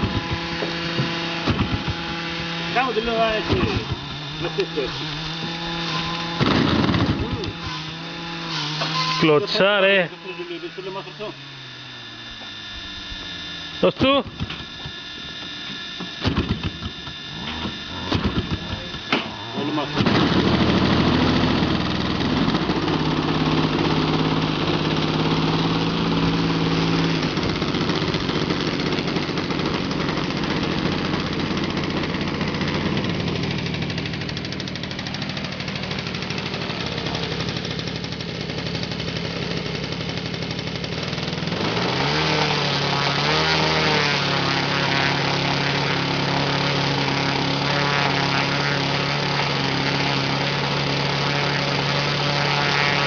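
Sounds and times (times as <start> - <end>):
model plane engine running: 0.0 - 53.0.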